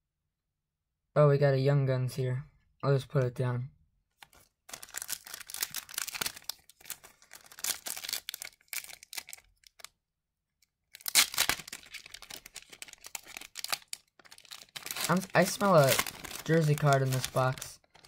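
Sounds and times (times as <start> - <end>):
foil wrapper crinkling: 4.2 - 9.9, 10.9 - 18.0.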